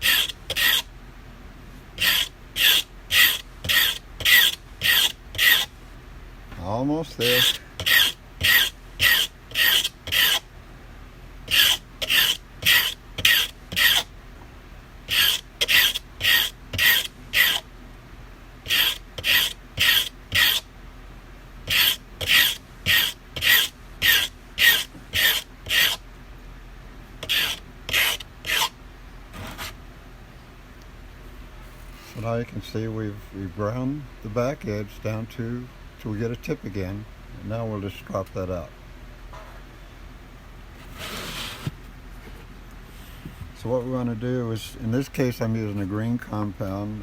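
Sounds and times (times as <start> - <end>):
knife blade rasping on sandpaper: 0.0 - 0.9, 2.0 - 5.7, 7.2 - 10.4, 11.5 - 14.1, 15.1 - 17.6, 18.6 - 20.6, 21.7 - 26.0, 27.2 - 28.7, 40.8 - 41.7.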